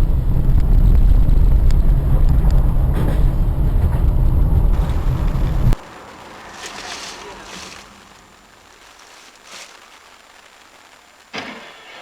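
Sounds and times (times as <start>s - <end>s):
car driving rumble: 0.0s - 12.0s.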